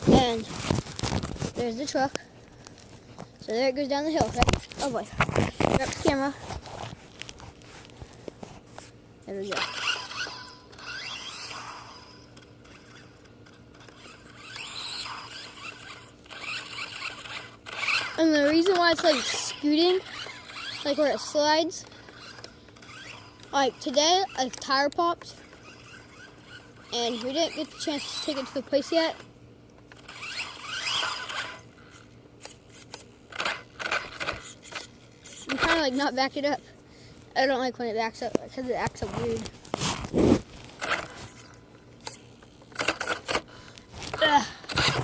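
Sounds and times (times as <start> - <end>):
gears clicking: 9.4 - 29.3, 29.9 - 36.1, 40.8 - 41.4, 42.0 - 45.0
electric motor whining: 9.5 - 29.3, 29.9 - 36.0, 39.7 - 45.0.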